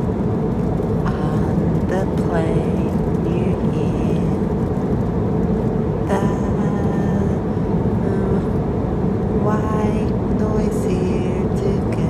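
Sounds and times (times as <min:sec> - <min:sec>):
airliner cabin engine rumble: 0:00.0 - 0:12.0
faint voices: 0:01.1 - 0:04.6, 0:06.1 - 0:12.0.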